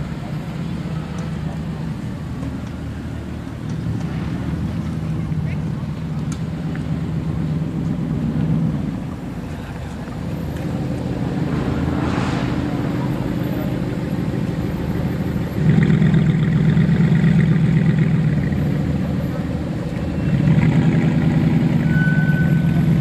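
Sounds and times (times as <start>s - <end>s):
car engines running at low revs: 0.0s - 23.0s
loud exhaust note: 10.8s - 18.6s.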